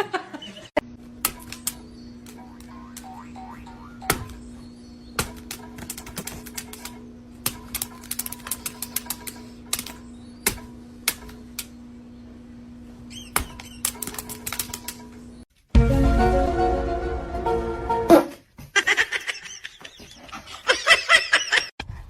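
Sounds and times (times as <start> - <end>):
steady low hum: 0.1 - 15.5.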